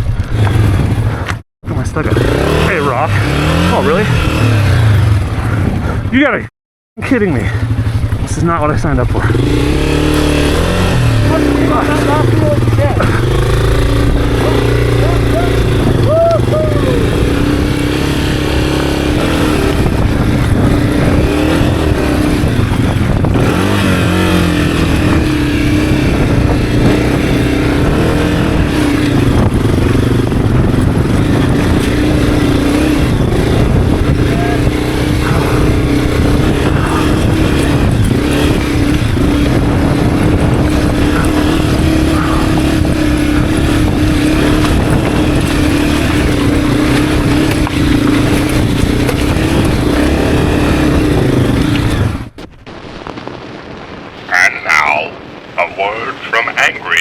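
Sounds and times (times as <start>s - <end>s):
motorcycle engine running: 0.0s - 53.4s.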